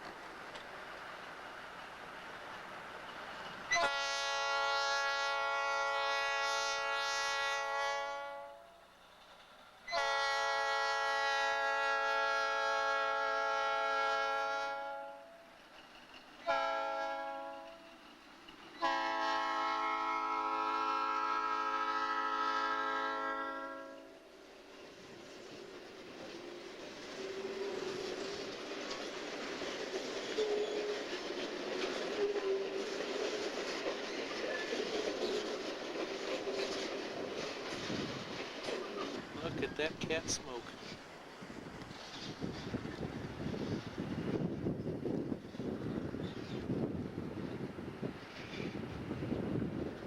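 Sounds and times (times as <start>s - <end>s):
locomotive air horn blasts: 3.7s - 8.8s, 9.9s - 15.5s, 16.4s - 17.9s, 18.8s - 24.2s.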